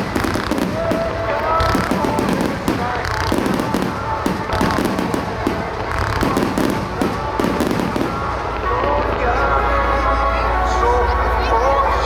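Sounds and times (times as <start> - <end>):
firework shells bursting: 0.0 - 8.6
music over loudspeakers: 0.0 - 12.0.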